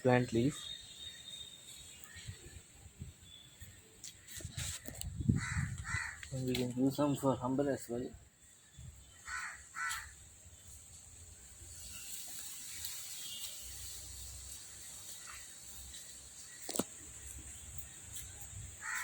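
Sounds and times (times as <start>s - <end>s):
crow cawing: 5.4s - 6.4s, 9.2s - 10.2s, 18.8s - 19.0s.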